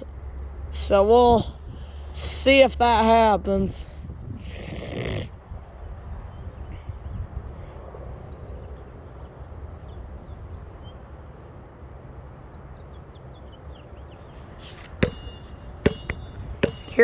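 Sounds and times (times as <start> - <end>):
wind buffeting microphone: 0.0 - 2.2, 3.1 - 8.8.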